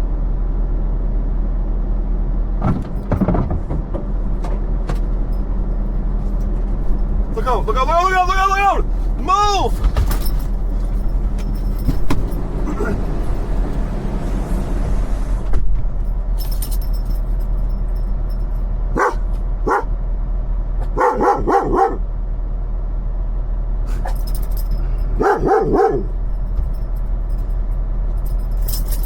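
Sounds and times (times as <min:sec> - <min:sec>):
truck engine idling hum: 0:00.0 - 0:29.0
dog barking: 0:18.9 - 0:19.9, 0:20.8 - 0:22.1, 0:25.1 - 0:26.2.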